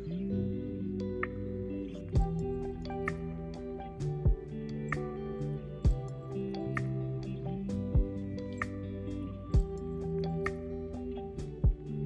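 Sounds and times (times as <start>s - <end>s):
plucked guitar-like notes: 0.0s - 12.0s
deep beats: 2.2s - 5.2s, 5.8s - 8.4s, 9.6s - 10.6s.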